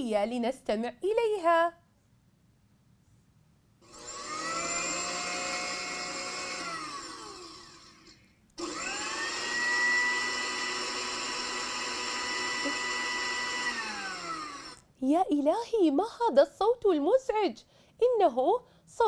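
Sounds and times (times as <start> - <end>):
electric blender whining: 3.8 - 14.8.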